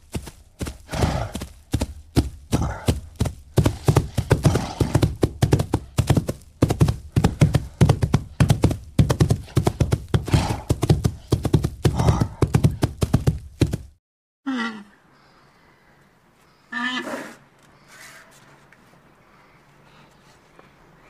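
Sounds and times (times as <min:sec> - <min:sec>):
rhinoceros tearing grass: 0:10.3 - 0:10.7.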